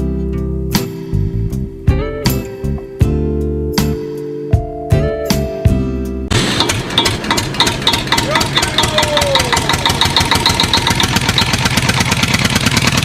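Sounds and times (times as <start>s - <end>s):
engine running: 6.3s - 13.0s.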